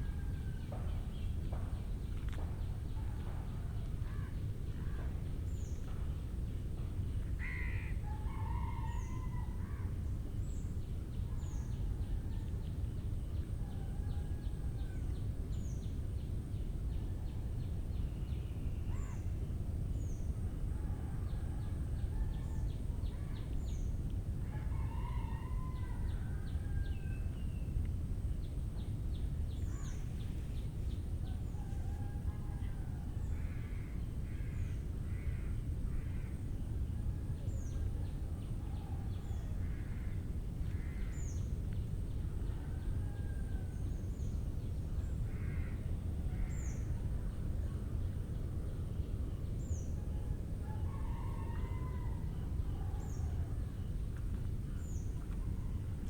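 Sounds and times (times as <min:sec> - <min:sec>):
crowing-like bird calls: 0:24.5 - 0:27.2, 0:50.7 - 0:53.6.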